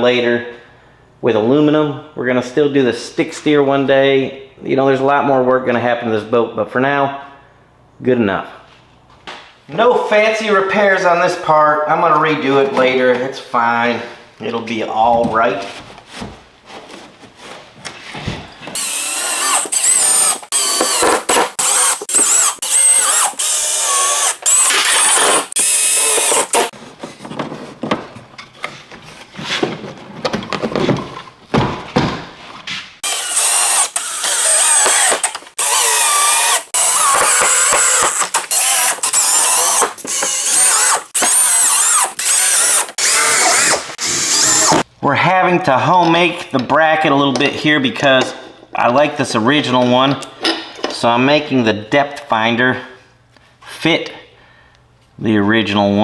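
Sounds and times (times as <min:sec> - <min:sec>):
power tool whining: 0:18.8 - 0:26.8, 0:33.0 - 0:44.8.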